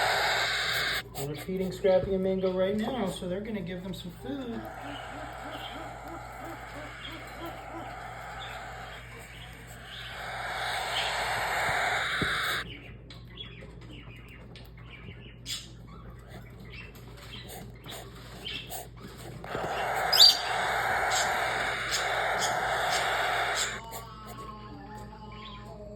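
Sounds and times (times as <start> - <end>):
chicks giving buzzing begging cries: 0.0 - 1.6, 4.1 - 12.7, 17.4 - 24.4.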